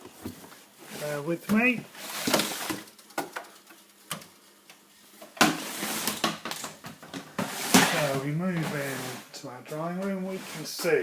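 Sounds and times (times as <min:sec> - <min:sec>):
rustling and clattering: 0:05.2 - 0:09.3.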